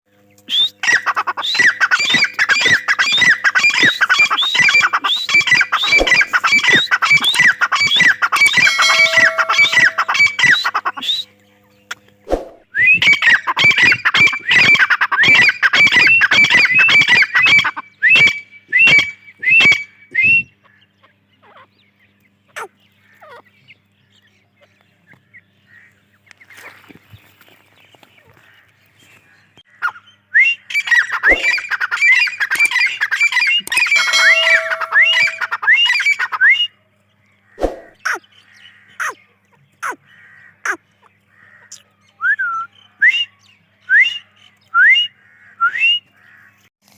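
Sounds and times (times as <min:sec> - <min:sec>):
francolin calling: 0:00.4 - 0:12.0, 0:30.7 - 0:36.6.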